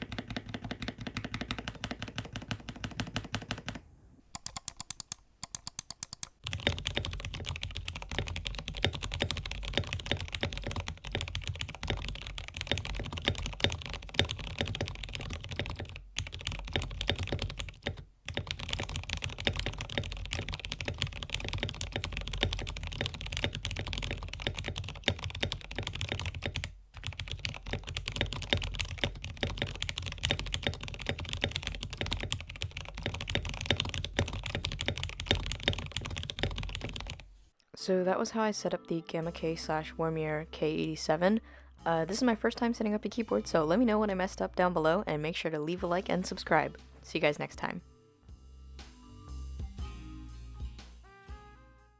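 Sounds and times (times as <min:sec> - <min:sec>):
fast typing on mechanical keyboard: 0:00.0 - 0:03.8, 0:04.4 - 0:37.3.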